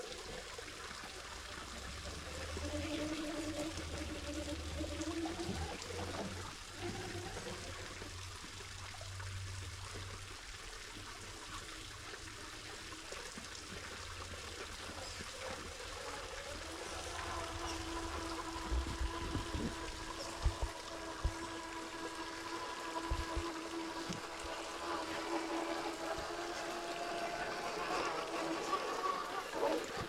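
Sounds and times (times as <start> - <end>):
stream water trickling: 0.0 - 30.0
low hum: 14.8 - 30.0.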